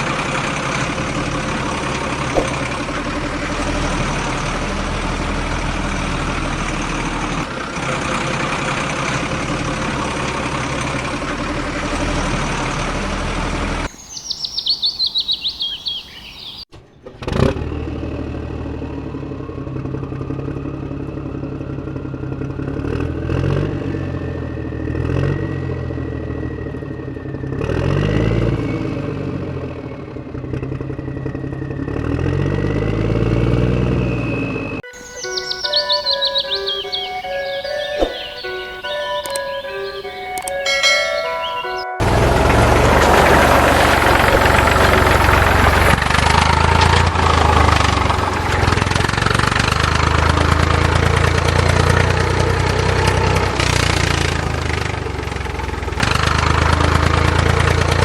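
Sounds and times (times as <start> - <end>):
engine-like running with whine: 0.0 - 58.0
high bird chirps: 13.9 - 16.7, 34.9 - 42.1
sharp click: 37.9 - 38.5, 39.2 - 39.6, 40.3 - 40.6.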